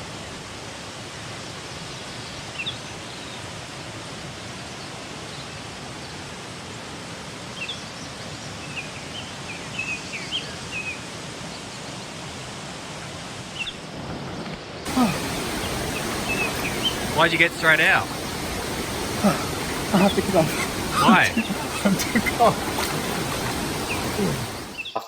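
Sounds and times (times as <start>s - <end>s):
waterfall rushing: 14.9s - 24.9s
high bird chirps: 14.9s - 25.0s.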